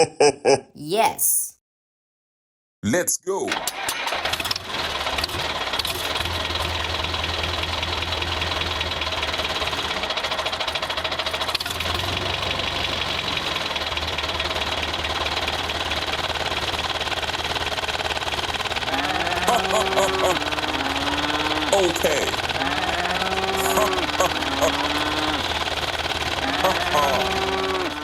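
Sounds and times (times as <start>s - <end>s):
tractor engine running: 5.1s - 18.8s.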